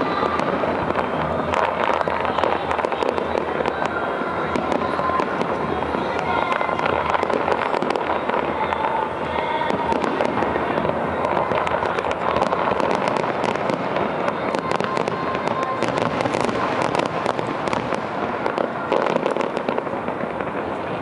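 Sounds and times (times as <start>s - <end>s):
fireworks crackling: 0.0s - 21.0s.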